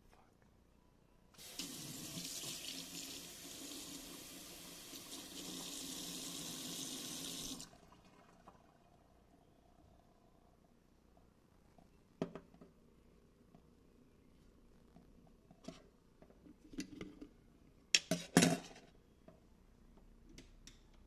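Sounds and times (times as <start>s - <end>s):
faucet running water into sink: 1.4s - 8.7s.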